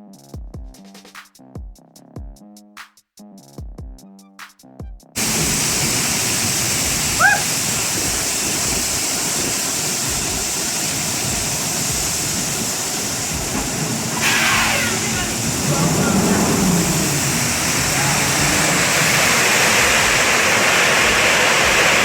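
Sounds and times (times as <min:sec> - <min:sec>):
brief squeal: 0:14.2 - 0:17.0.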